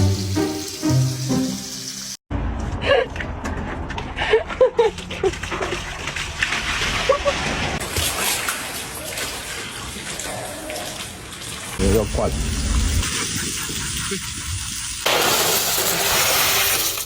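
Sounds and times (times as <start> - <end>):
water splashing and sloshing: 3.5 - 17.0.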